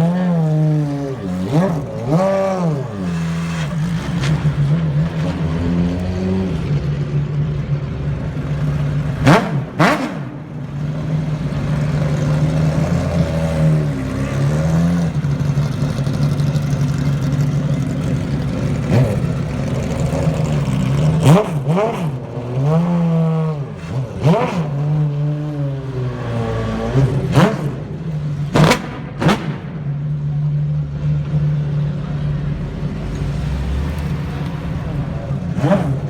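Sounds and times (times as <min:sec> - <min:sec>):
sports car engine idling: 0:13.9 - 0:25.7.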